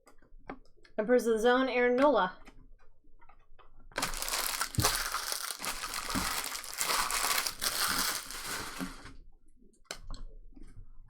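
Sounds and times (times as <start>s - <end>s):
wrappers crumpling: 4.0s - 9.1s.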